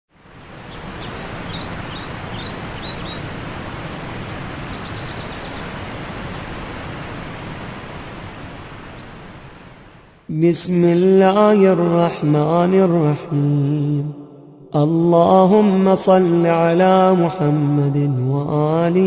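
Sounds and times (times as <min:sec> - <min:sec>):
steady outdoor noise: 0:00.1 - 0:19.0
bird trill: 0:00.6 - 0:05.7
small bird chirps: 0:00.6 - 0:05.7.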